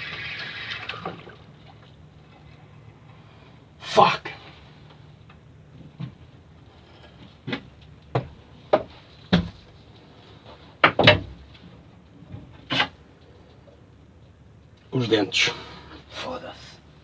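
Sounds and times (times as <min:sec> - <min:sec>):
hard knocks on a boat: 0:07.5 - 0:09.8, 0:10.8 - 0:11.5.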